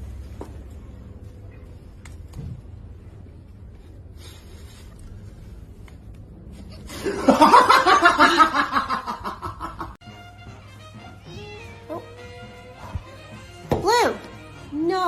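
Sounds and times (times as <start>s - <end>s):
person laughing loudly: 6.9s - 10.0s.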